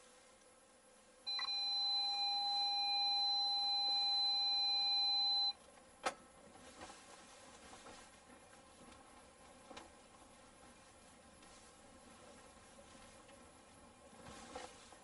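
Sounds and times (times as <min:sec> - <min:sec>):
two-tone electronic beep: 0:01.3 - 0:05.6.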